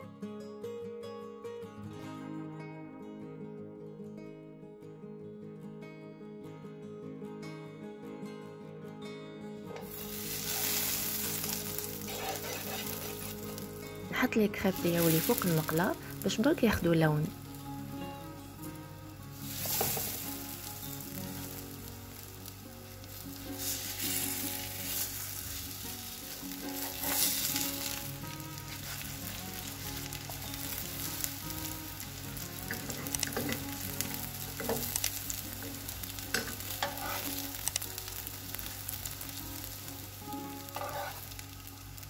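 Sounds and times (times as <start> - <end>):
food sizzling in frying pan: 9.8 - 42.0
metal spatula scraping and clicking: 12.1 - 13.6, 36.3 - 37.4, 40.7 - 41.3.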